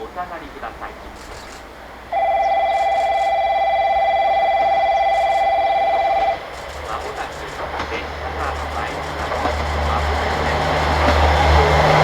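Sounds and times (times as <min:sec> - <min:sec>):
electronic platform bell ringing: 0:02.1 - 0:06.5.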